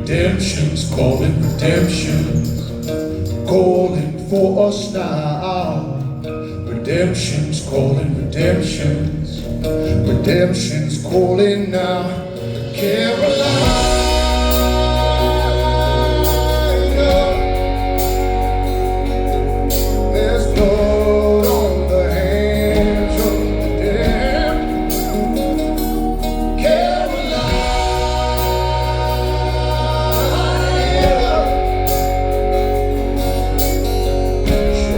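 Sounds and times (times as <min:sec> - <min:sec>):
live rock band playing: 0:00.0 - 0:34.9
person singing: 0:00.0 - 0:34.9
drum beat with cymbals: 0:12.2 - 0:34.9.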